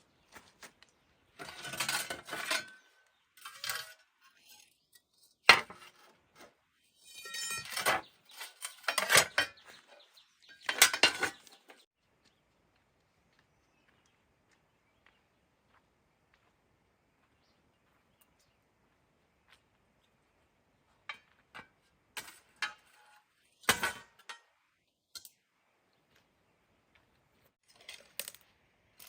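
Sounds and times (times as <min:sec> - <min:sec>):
metal scraping and clinking: 0:01.4 - 0:11.9, 0:21.1 - 0:24.5.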